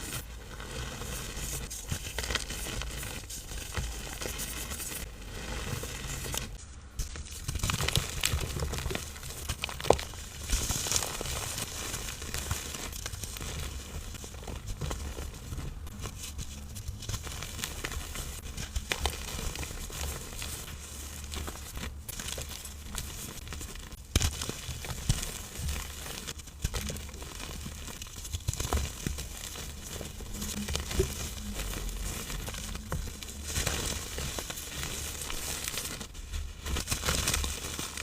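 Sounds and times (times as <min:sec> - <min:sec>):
powdery block crunching: 0:00.0 - 0:38.0.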